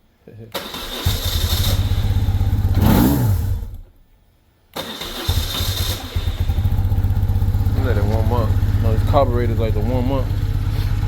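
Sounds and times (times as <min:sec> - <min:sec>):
motorcycle engine cranking: 0:00.6 - 0:03.8, 0:04.8 - 0:11.0
motorcycle engine revving and idling: 0:01.0 - 0:03.8, 0:05.2 - 0:11.0.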